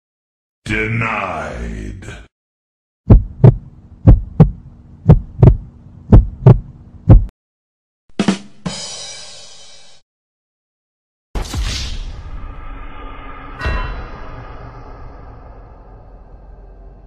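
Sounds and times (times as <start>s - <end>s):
heartbeat thumps: 3.0s - 7.3s
steady low hum: 3.1s - 7.3s
short hit with ringing: 13.5s - 16.0s.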